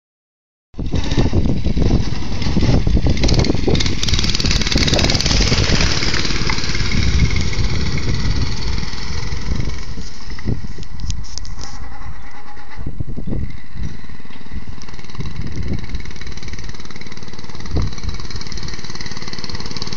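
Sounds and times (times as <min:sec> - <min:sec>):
mini bike engine running: 0:00.8 - 0:19.9.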